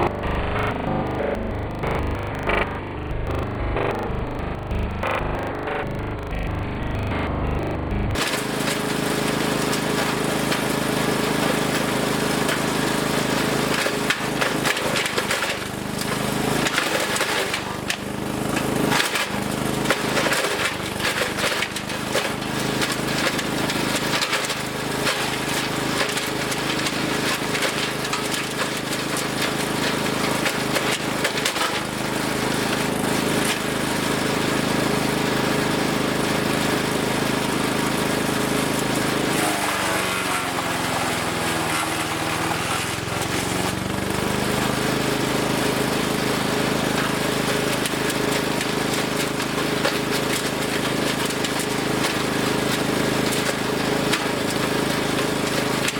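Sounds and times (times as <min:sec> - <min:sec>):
wood chipper engine running: 0:00.0 - 0:55.9
branches cracking and snapping: 0:13.7 - 0:32.0.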